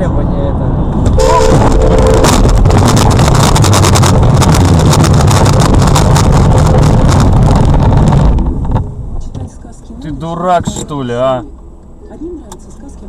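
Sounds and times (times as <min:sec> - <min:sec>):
vehicle engine and road noise: 0:00.0 - 0:13.0
wind buffeting microphone: 0:00.8 - 0:09.3.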